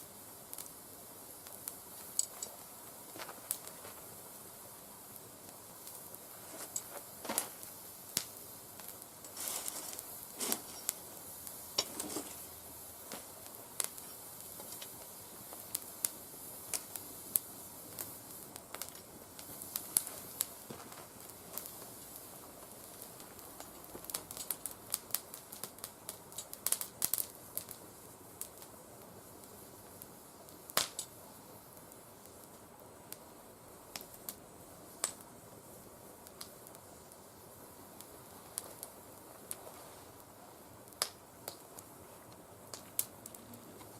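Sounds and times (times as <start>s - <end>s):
twigs burning with crackles and pops: 0.0s - 43.9s.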